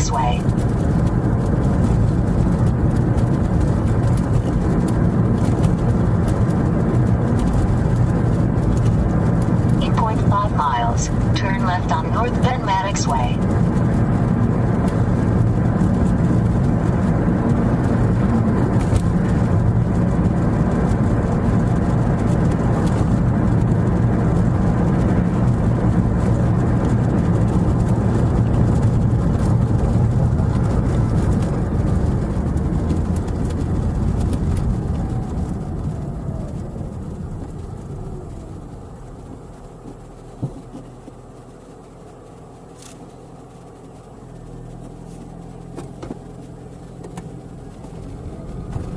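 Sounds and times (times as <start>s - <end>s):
car cabin road and engine noise: 0.0s - 48.9s.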